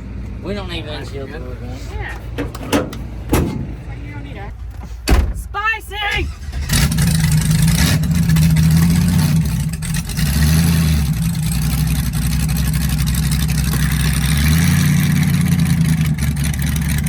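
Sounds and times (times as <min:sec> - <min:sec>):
car engine idling loudly: 0:06.3 - 0:17.0.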